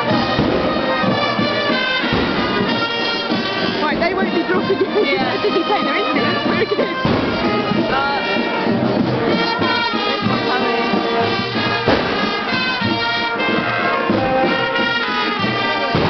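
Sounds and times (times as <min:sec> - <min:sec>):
marching brass band playing: 0:00.0 - 0:16.0.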